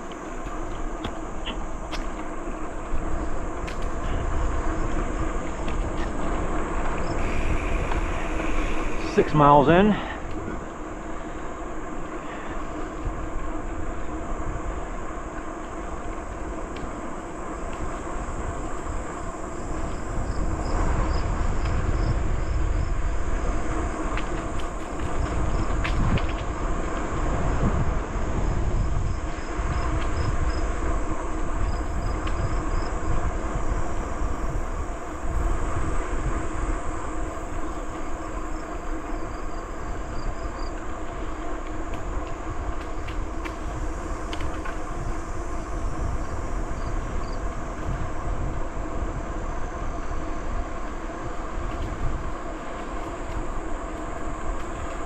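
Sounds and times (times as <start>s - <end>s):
bicycle tyre rumble: 0.0s - 55.0s
wind buffeting microphone: 0.0s - 55.0s.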